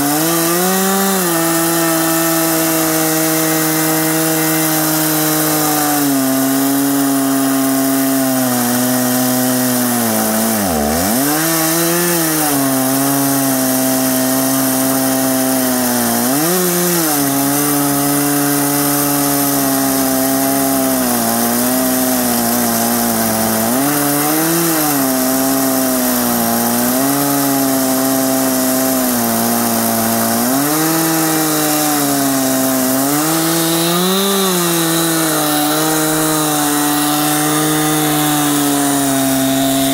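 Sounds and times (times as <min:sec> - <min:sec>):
chainsaw cutting a log: 0:00.0 - 0:39.9.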